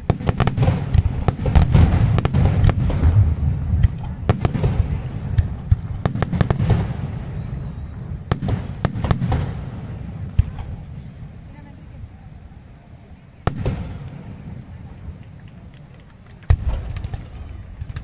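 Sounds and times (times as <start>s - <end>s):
fireworks cracks and bangs: 0.0s - 11.2s, 13.4s - 18.0s
low rumble of bursting shells: 0.0s - 11.4s.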